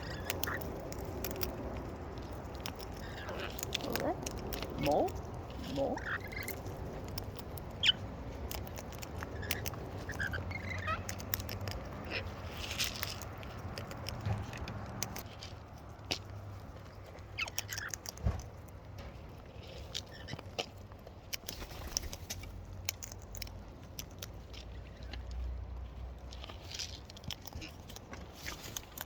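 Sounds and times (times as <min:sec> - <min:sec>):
beak clicks and crunching: 0:00.0 - 0:29.0.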